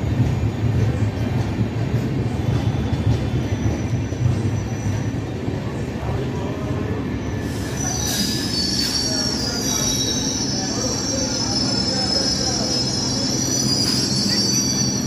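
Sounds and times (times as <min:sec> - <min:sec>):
train coaches rumbling: 0:00.0 - 0:15.0
high-pitched wheel squeal: 0:07.2 - 0:15.0.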